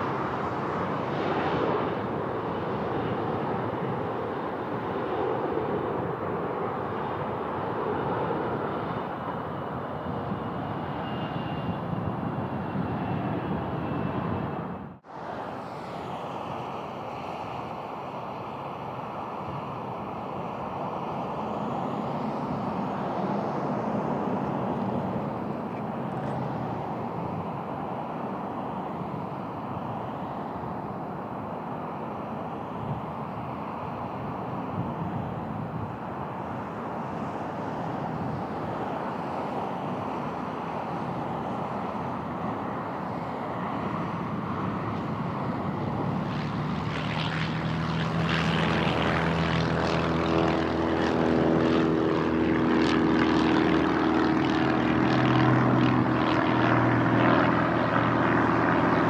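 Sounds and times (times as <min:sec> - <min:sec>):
distant aircraft engine: 0:00.0 - 0:59.0
wind buffeting microphone: 0:34.2 - 0:36.5.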